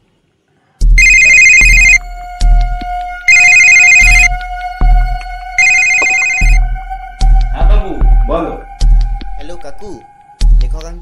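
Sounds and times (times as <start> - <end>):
background music: 0.9 - 11.0
phone ringtone: 1.0 - 2.0, 3.3 - 4.3, 5.6 - 6.6.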